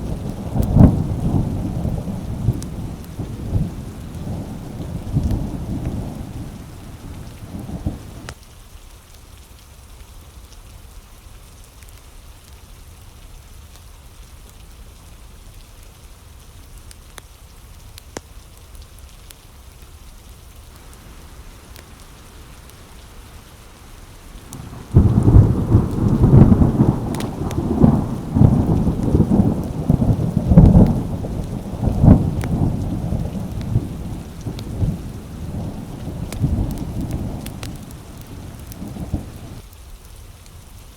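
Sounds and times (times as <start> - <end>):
thunder rumbling: 0.0 - 8.3, 20.8 - 39.6
steady rain: 0.0 - 40.9.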